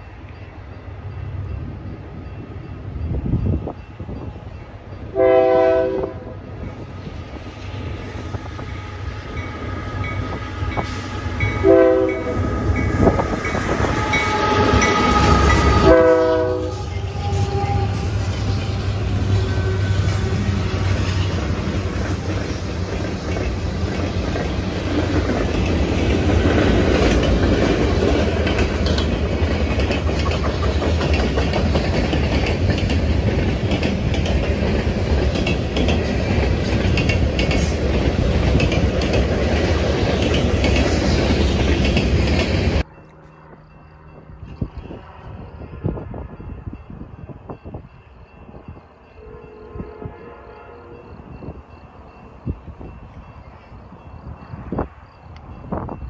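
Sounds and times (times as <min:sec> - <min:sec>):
train horn blasts: 0:05.1 - 0:06.4, 0:08.7 - 0:21.2, 0:49.1 - 0:51.3
wheels clattering on rails: 0:09.3 - 0:45.3.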